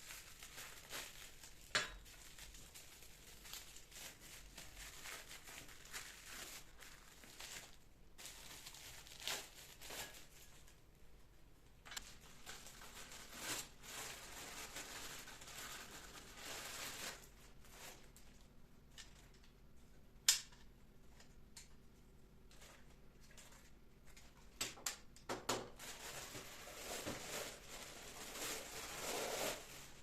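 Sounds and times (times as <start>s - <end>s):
packaging crinkling and rustling: 0.0s - 10.8s, 11.8s - 19.5s, 22.5s - 30.0s.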